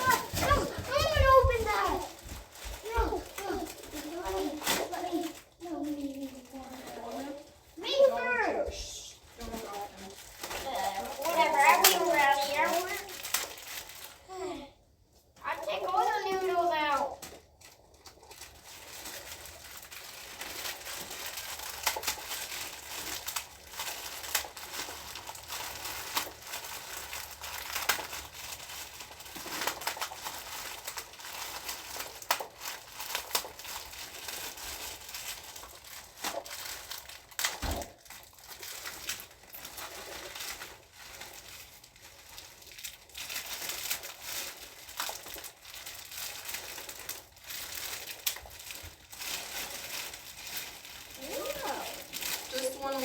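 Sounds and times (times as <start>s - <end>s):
plastic packaging crinkling: 0.0s - 53.0s
dry noodles crunching: 17.4s - 53.0s.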